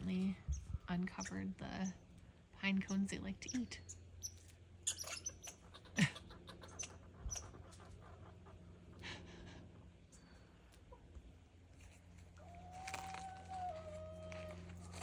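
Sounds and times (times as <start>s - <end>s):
squirrel squeaks: 2.9s - 7.8s.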